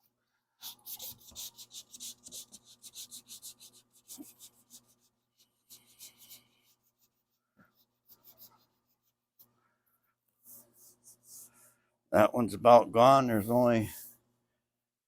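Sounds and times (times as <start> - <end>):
sandpaper rubbing on painted panel: 0.6 - 9.2.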